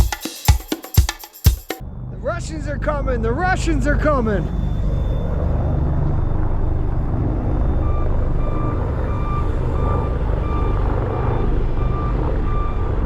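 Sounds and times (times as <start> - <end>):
truck engine rumbling: 2.0 - 13.0
reversing alarm beeping: 2.9 - 13.0.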